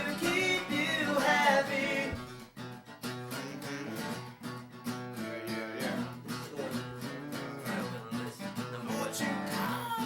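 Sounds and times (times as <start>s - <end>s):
person singing: 0.0s - 2.2s, 5.2s - 10.0s
acoustic guitar strumming: 0.0s - 10.0s.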